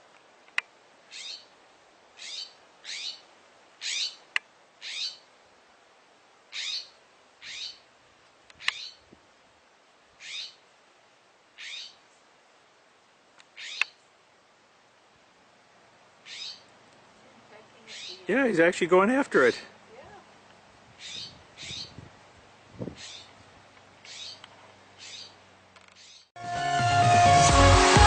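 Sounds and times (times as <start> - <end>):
bird alarm calls: 1.1 - 1.5, 2.2 - 5.3, 6.5 - 7.9, 8.5 - 9.0, 10.2 - 10.6, 11.6 - 12.0, 13.4 - 14.0, 16.2 - 16.7, 17.8 - 18.4, 21.0 - 22.0, 22.9 - 23.4, 24.0 - 26.3.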